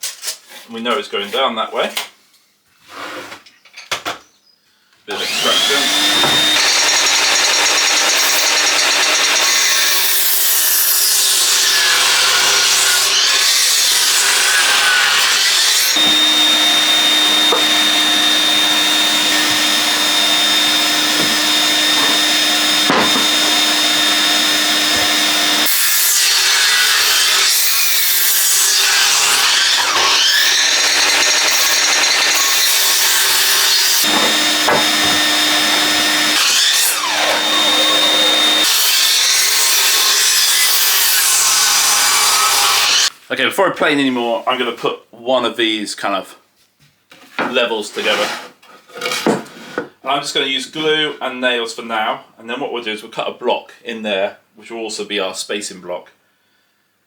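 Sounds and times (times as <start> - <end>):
planer motor whine: 5.1 - 10.1, 15.9 - 26.6, 28.8 - 38.8
planer cutting boards: 5.1 - 43.1, 47.4 - 49.9.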